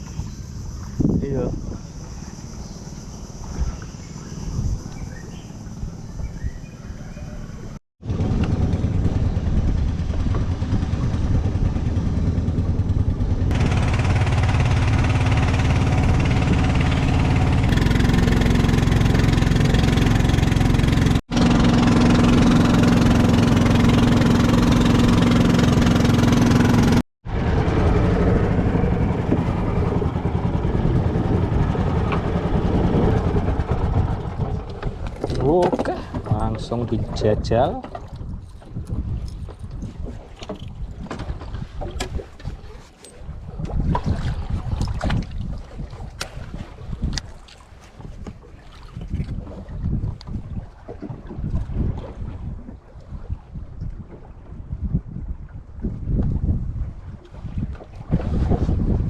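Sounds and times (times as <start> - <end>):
boat engine drone: 0.0 - 37.2
rushing wind: 0.0 - 59.0.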